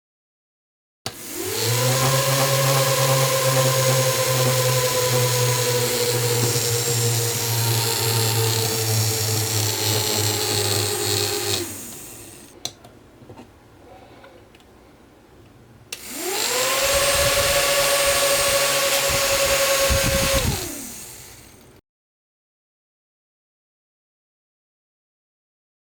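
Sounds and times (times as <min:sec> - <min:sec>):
small fan motor whining: 0:01.1 - 0:12.6, 0:16.0 - 0:21.8.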